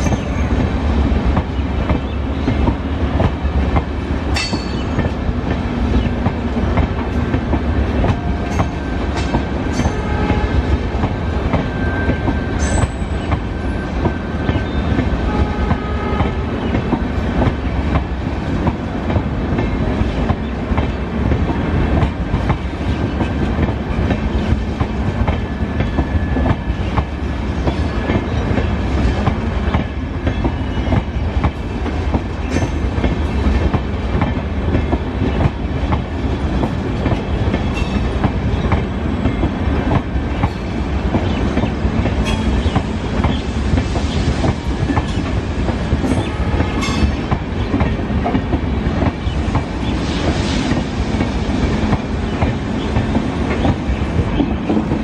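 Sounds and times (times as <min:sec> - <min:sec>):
train rumble: 0:00.0 - 0:55.0.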